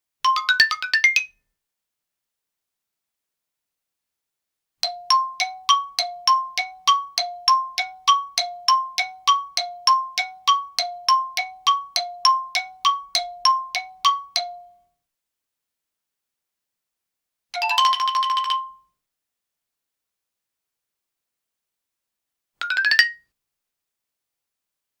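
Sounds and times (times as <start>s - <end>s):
xylophone alternating two notes: 4.8s - 14.8s.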